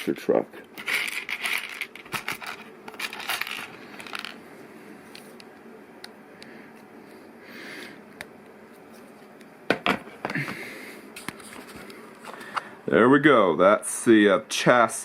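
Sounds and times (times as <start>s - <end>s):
plastic pieces clicking and rattling: 0.8s - 4.4s.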